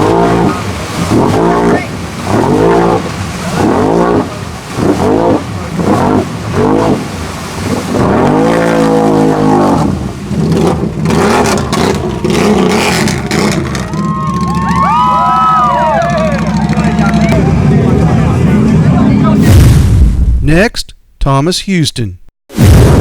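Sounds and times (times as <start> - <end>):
vehicle engine revving: 0.0 - 14.4.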